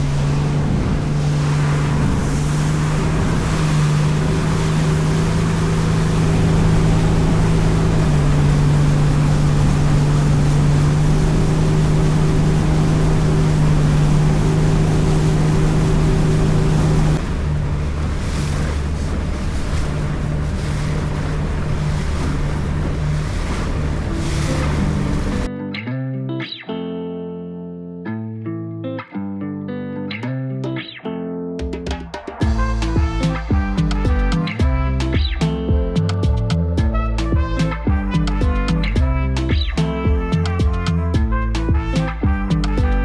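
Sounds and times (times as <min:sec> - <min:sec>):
motorboat engine running: 0:00.0 - 0:25.5, 0:32.4 - 0:43.0
wind and water rushing: 0:00.0 - 0:25.5, 0:32.4 - 0:35.7.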